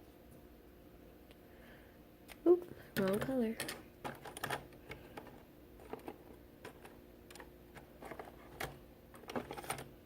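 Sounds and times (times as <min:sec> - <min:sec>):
colouring supplies clicking and tapping: 0:02.9 - 0:10.0.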